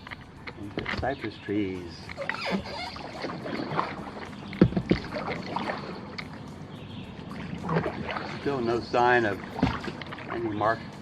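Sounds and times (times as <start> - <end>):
paddle splashing in water: 0.0 - 10.9
sharp knocks: 4.5 - 5.1.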